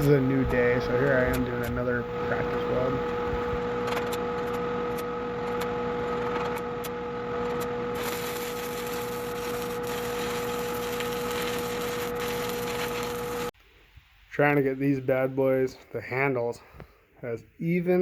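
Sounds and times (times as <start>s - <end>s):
crackling hissing welding arc: 0.0s - 3.6s, 8.0s - 13.5s
electrical hum: 0.0s - 13.5s.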